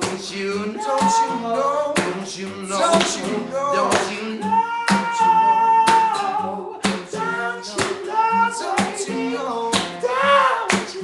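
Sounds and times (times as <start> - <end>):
acoustic guitar: 0.0 - 11.0
person singing gospel: 0.0 - 11.0.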